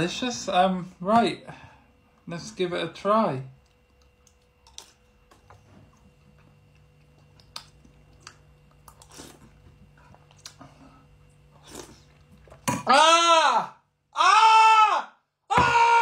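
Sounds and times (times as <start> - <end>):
faint steady hum: 0.0 - 16.0
quiet chewing of cereal: 3.6 - 12.6.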